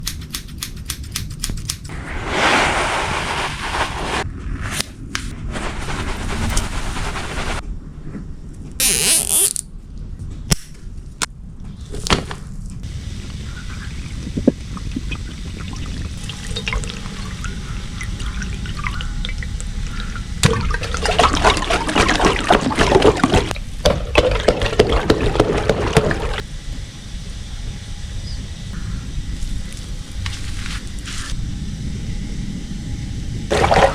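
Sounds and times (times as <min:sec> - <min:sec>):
sharp clicks: 0:00.0 - 0:01.9
water pouring and splashing: 0:14.0 - 0:26.4, 0:33.5 - 0:33.9.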